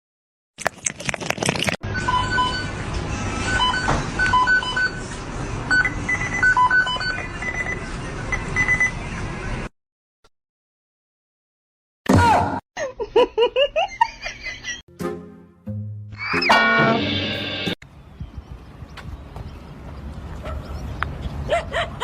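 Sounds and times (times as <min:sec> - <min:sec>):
short electronic beeps: 0:01.9 - 0:02.8, 0:05.7 - 0:09.0
steady background noise: 0:01.9 - 0:09.7.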